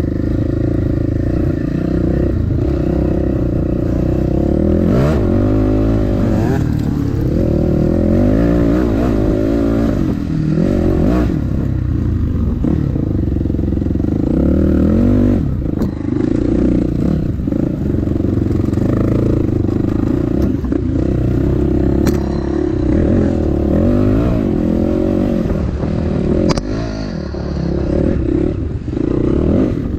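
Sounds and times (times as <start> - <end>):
dirt bike engine revving: 0.0 - 29.9
clatter: 15.7 - 21.0, 21.9 - 23.6.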